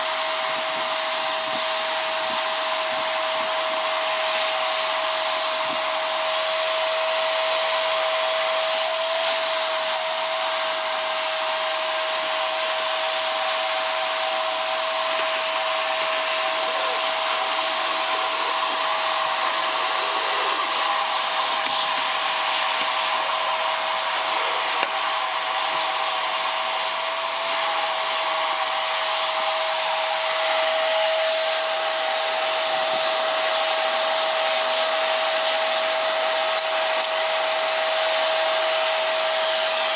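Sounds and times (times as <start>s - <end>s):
vacuum cleaner motor whine: 0.0s - 39.9s
rush of airflow: 14.2s - 28.9s.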